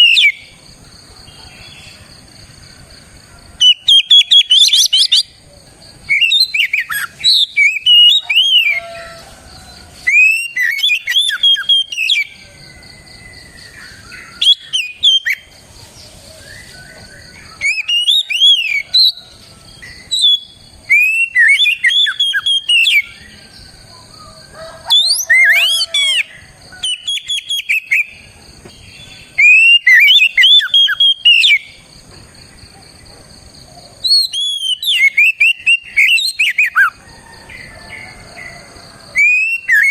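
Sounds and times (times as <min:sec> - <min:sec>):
bird singing whistles and chirps: 0:00.0 - 0:00.5, 0:03.6 - 0:05.3, 0:06.1 - 0:09.2, 0:10.0 - 0:28.2, 0:28.8 - 0:31.8, 0:34.1 - 0:37.0, 0:39.2 - 0:39.9.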